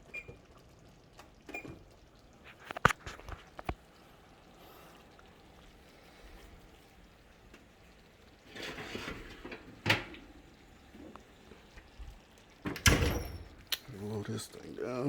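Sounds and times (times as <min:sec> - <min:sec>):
rustling scrape: 0:08.4 - 0:09.4.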